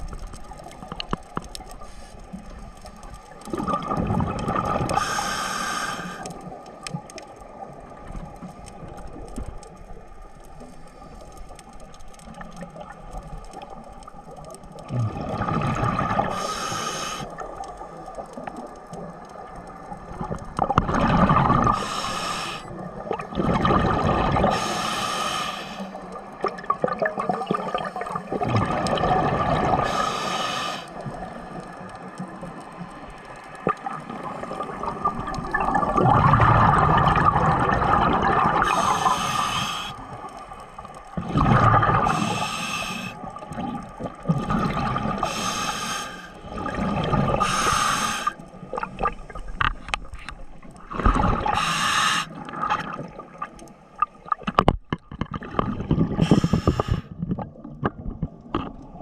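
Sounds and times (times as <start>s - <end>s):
diver breathing through regulator: 4.9s - 6.4s, 16.3s - 17.4s, 21.7s - 22.7s, 24.4s - 26.1s, 29.8s - 31.0s, 38.6s - 40.2s, 42.0s - 43.3s, 45.2s - 46.4s, 47.3s - 48.5s, 51.4s - 52.6s, 56.1s - 57.2s
gurgling exhaust bubbles: 34.6s - 38.9s, 41.2s - 42.1s.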